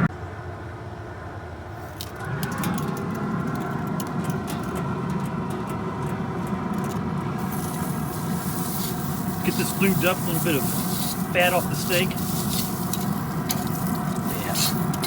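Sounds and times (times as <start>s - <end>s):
rush of fire: 6.7s - 15.0s
steady high hiss: 7.2s - 15.0s
steak sizzling with crackles and pops: 7.4s - 15.0s.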